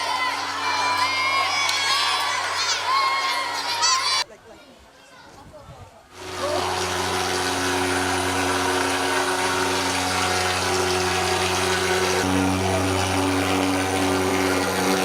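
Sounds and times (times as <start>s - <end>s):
fogging machine droning roar: 6.2s - 15.0s.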